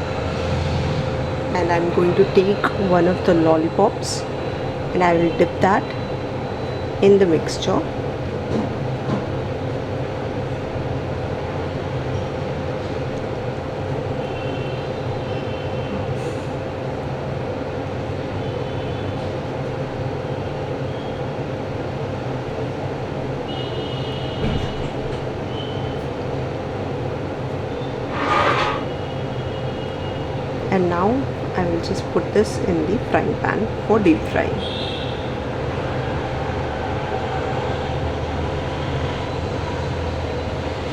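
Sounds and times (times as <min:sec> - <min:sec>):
fan-like mechanical hum: 0:00.0 - 0:40.9
constant mid-pitched tone: 0:01.1 - 0:08.2.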